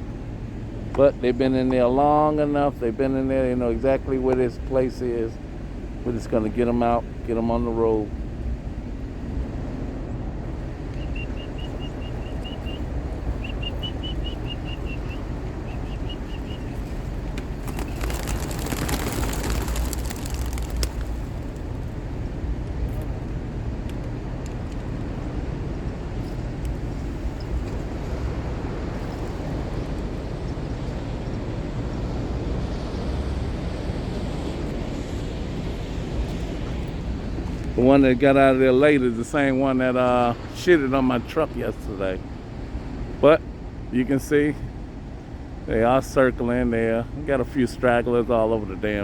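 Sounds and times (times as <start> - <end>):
steady low rumble: 0.0 - 38.4
pigeon wingbeats rush: 11.2 - 22.2.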